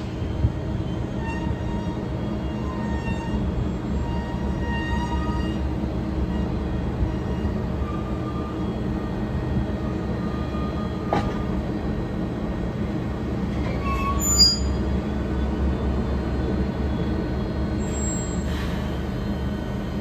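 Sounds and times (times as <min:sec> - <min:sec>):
train rumbling: 0:00.0 - 0:20.0
train wheels squealing: 0:00.4 - 0:09.2, 0:13.6 - 0:16.0, 0:16.9 - 0:20.0.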